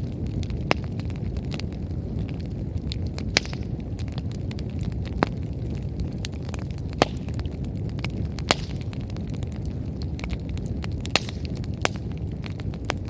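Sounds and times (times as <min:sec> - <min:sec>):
fire crackling: 0:00.0 - 0:13.0
low rumble of flames: 0:00.0 - 0:13.0
sharp pops from firewood: 0:03.3 - 0:03.7, 0:06.5 - 0:08.9, 0:11.0 - 0:12.1.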